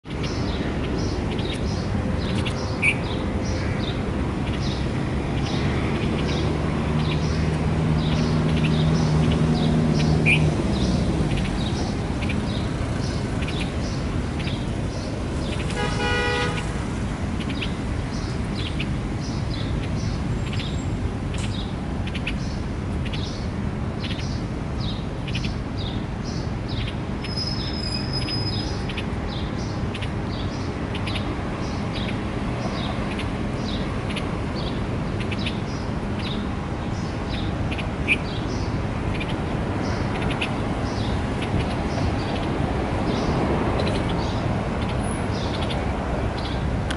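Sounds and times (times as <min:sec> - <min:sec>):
small birds chirping: 0:00.0 - 0:16.7, 0:17.3 - 0:46.8
traffic rumble: 0:00.0 - 0:46.9
car horn: 0:15.8 - 0:16.8.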